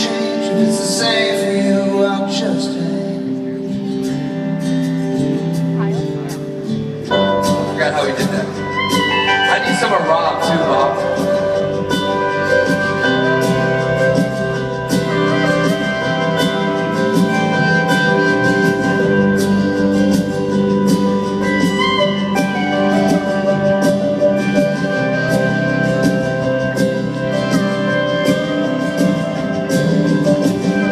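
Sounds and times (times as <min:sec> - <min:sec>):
guitar and keyboard chords: 0:00.0 - 0:30.9
steady drum beat: 0:07.0 - 0:30.9.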